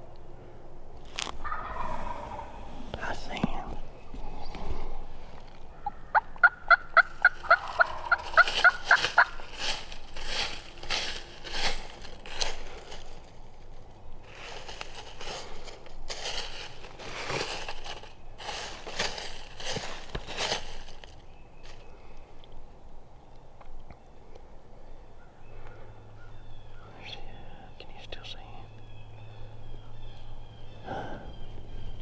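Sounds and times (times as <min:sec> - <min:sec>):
crunching and rustling leaves: 0:01.0 - 0:22.7
turkey yelps: 0:01.4 - 0:02.7, 0:05.8 - 0:09.4.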